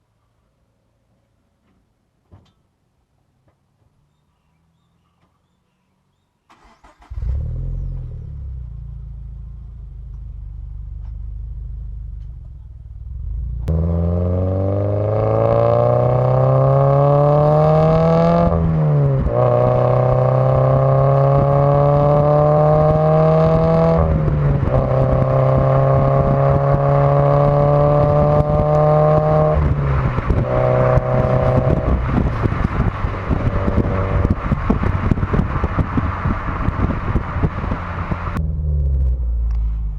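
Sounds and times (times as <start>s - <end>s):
road noise: 0.0s - 39.9s
car engine revving through gears: 6.6s - 8.8s, 13.4s - 39.8s.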